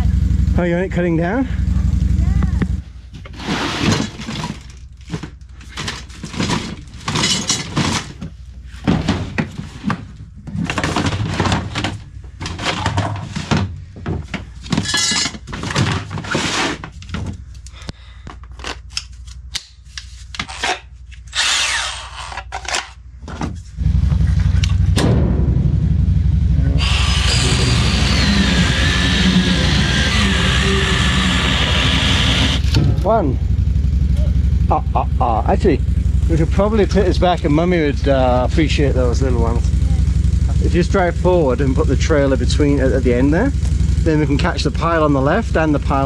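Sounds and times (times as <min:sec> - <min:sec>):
low drone: 0:23.7 - 0:43.0.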